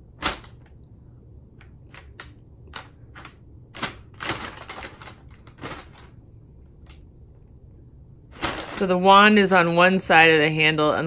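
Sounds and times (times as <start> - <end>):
packing paper crinkling: 3.8 - 6.2, 8.3 - 9.8
cat scrabbling on paper: 8.4 - 9.0.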